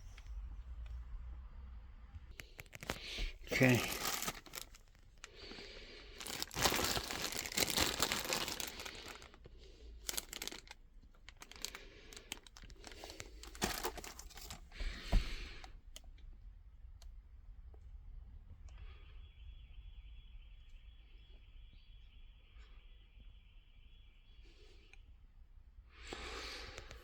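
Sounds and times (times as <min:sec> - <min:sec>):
packaging crinkling and tearing: 0:02.4 - 0:15.2.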